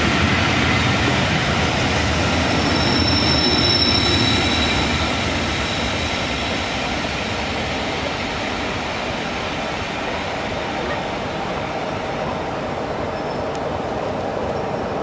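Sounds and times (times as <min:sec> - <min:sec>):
train wheels rolling on rails: 0:00.0 - 0:15.0
faint high-pitched squeal: 0:02.4 - 0:06.0.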